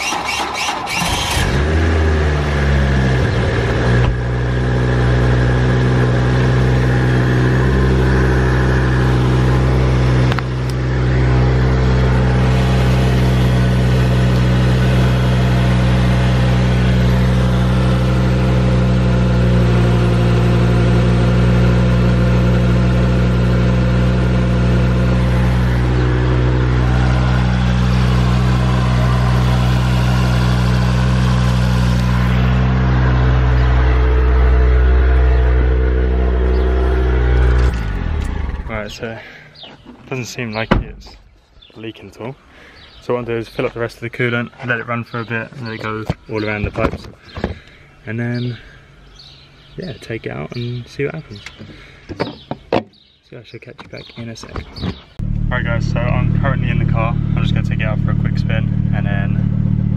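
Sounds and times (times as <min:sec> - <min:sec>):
car engine idling: 0:00.0 - 0:39.2, 0:55.2 - 0:59.9.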